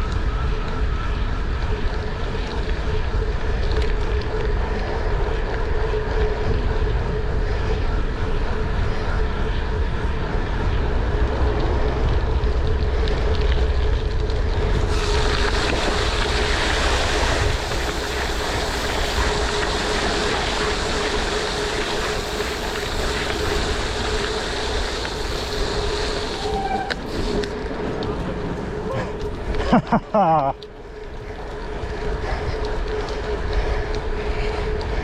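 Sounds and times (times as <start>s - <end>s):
steady hum: 0.0s - 35.0s
wind buffeting microphone: 0.0s - 35.0s
rushing water: 14.8s - 27.5s.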